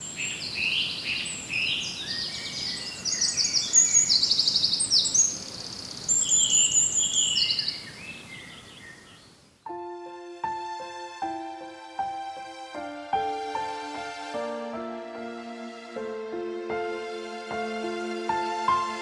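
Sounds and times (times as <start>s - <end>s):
songbirds chirping and trilling: 0.0s - 9.6s.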